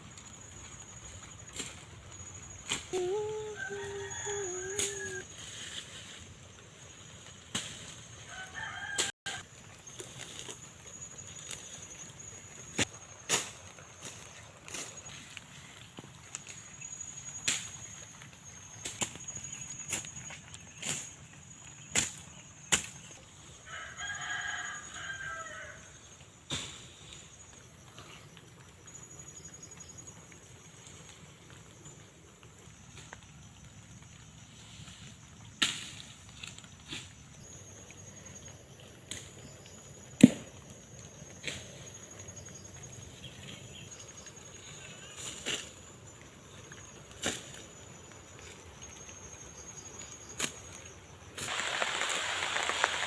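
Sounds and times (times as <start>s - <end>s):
rooster crowing: 3.2s - 5.3s, 8.3s - 9.4s, 23.6s - 26.0s
blade chopping vegetation: 40.2s - 40.5s.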